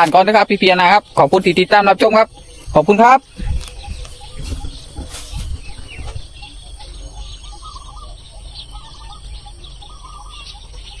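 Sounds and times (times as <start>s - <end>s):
small birds chirping: 0.0s - 11.0s
microphone rumbling: 2.0s - 8.0s.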